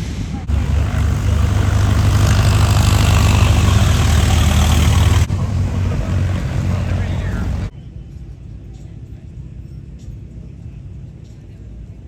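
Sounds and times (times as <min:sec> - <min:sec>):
car engine running: 0:00.4 - 0:07.7.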